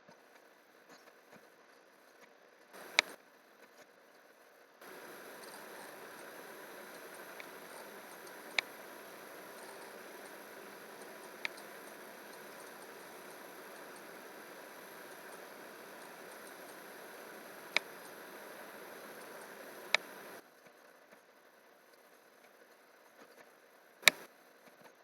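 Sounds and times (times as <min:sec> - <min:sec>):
short sharp clicks: 0:02.8 - 0:03.2, 0:04.8 - 0:20.4, 0:24.0 - 0:24.3
steady hiss: 0:02.8 - 0:03.2, 0:04.8 - 0:20.4, 0:24.0 - 0:24.3.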